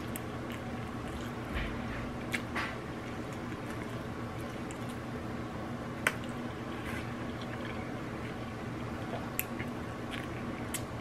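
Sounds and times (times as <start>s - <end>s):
person chewing food: 0.0s - 5.1s, 6.0s - 11.0s
steady low hum: 0.0s - 11.0s.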